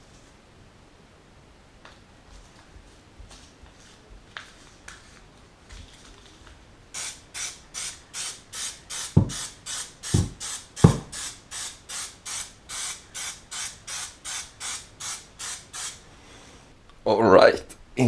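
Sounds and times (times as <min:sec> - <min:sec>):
aerosol can spraying bursts: 0:07.0 - 0:16.0
loud thumps: 0:10.2 - 0:11.2.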